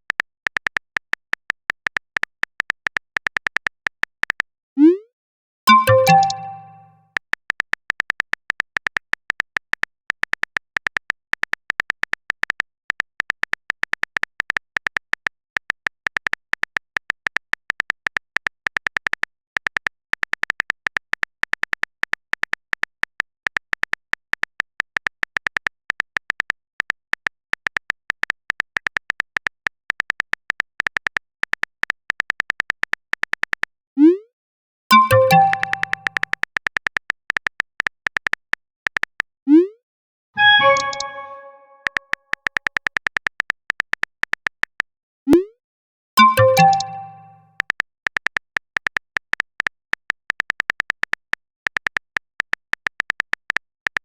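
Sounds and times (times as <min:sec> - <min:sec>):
keyboard typing clicks: 0:05.7 - 0:09.4, 0:34.9 - 0:39.2, 0:40.4 - 0:44.8, 0:46.2 - 0:54.0.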